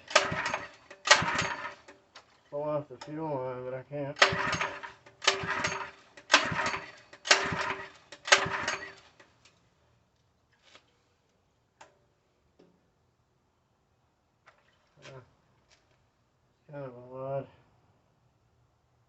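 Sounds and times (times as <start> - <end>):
rasping mechanical strokes: 4.2 - 9.1.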